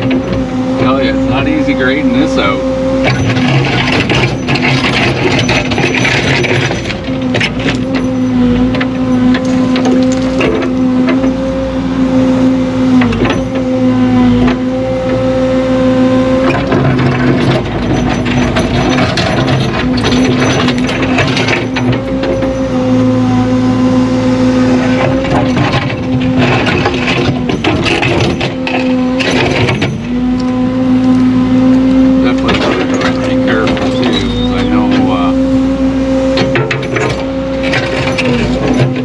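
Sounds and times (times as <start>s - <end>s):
earthmoving machine engine: 0.0s - 39.0s
metal clanks and rattles: 3.0s - 11.4s, 13.0s - 13.7s, 16.4s - 22.8s, 24.8s - 30.4s, 32.2s - 35.4s, 36.3s - 39.0s.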